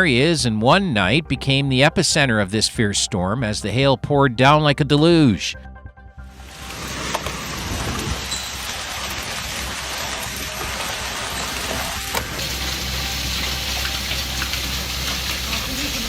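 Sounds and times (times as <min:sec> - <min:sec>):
rain and hail hissing: 0:06.3 - 0:16.0.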